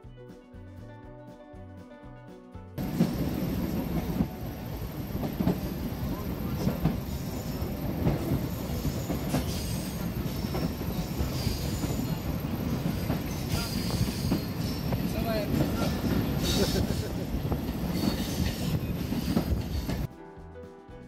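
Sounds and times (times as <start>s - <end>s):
train rumbling on track: 2.8s - 20.1s
wheels knocking and clattering: 2.8s - 20.1s
high wheel squeals: 7.0s - 15.1s, 17.9s - 20.1s.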